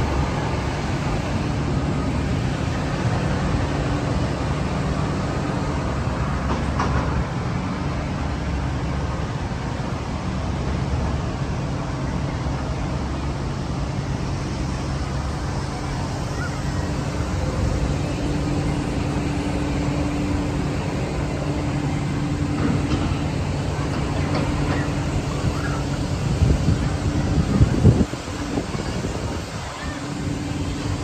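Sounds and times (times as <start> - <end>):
low mechanical rumble: 0.0 - 31.0
outdoor noise: 0.0 - 31.0.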